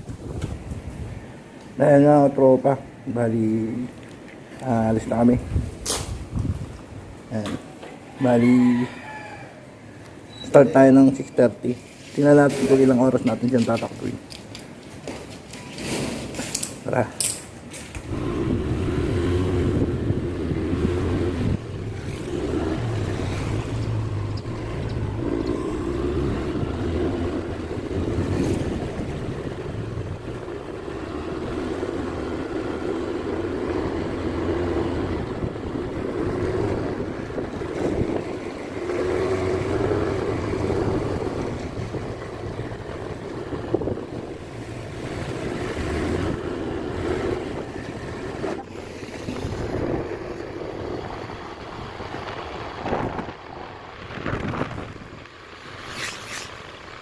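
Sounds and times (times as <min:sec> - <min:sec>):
wind buffeting microphone: 0:00.0 - 0:01.6, 0:04.8 - 0:07.3, 0:18.0 - 0:55.9
scooter engine running: 0:18.0 - 0:55.6.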